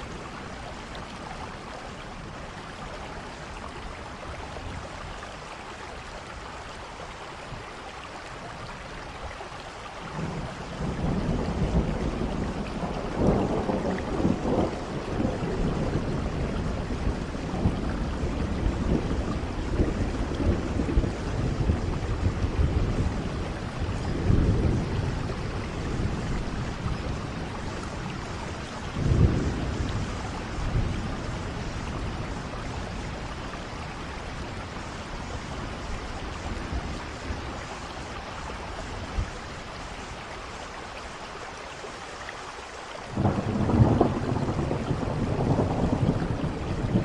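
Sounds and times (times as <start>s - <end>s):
steady rain: 0.0s - 47.0s
thunder rumbling: 10.1s - 38.1s, 43.1s - 47.0s.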